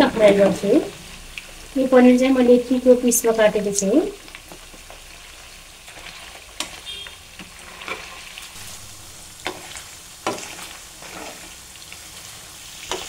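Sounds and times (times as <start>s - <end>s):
cheese cubes sizzling in oil: 0.0s - 13.0s
metal ladle scraping a pan: 5.9s - 8.5s, 9.4s - 11.6s.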